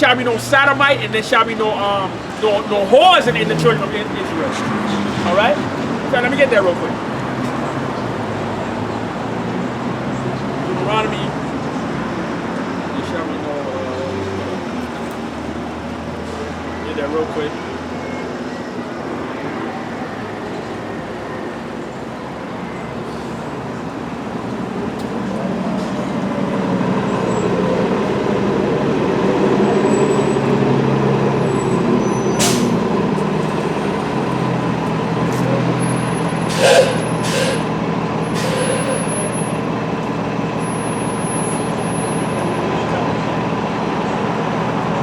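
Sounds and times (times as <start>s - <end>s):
heavy vehicle engine: 0.0s - 45.0s
short sharp hisses: 32.4s - 32.8s, 36.5s - 37.7s, 38.3s - 39.0s.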